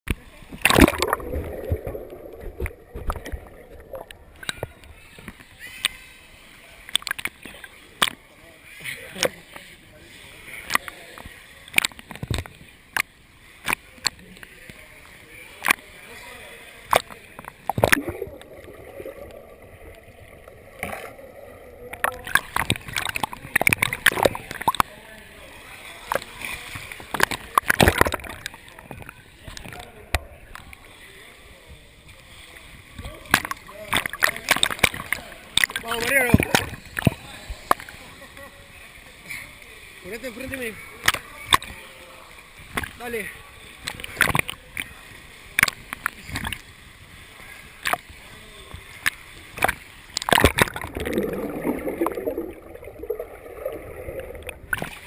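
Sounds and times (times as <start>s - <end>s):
water sloshing around a kayak: 0.2s - 55.0s
short water splashes: 0.5s - 5.8s, 15.5s - 25.0s, 48.9s - 55.0s
sharp splashes and slaps: 0.6s - 1.4s.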